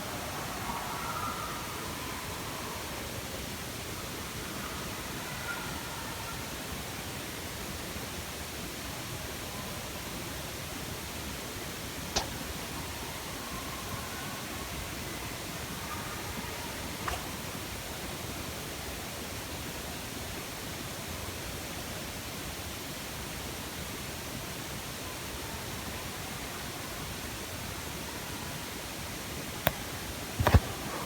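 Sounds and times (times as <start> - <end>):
faint click: 12.2 - 12.4.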